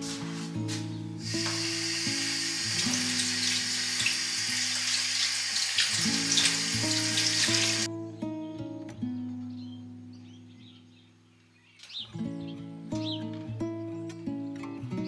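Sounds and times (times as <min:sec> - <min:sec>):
water running and splashing: 0:01.2 - 0:07.9
plucked guitar music: 0:06.0 - 0:10.1.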